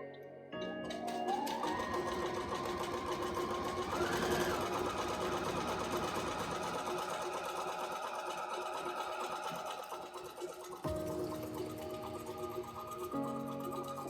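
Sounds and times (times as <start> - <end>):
sewing machine motor whine: 1.0 - 10.9.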